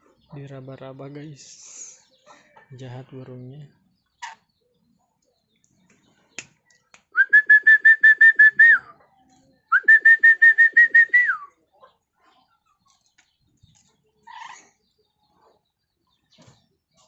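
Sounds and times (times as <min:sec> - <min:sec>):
bird rapid whistled notes: 0:07.2 - 0:08.8, 0:09.7 - 0:11.5.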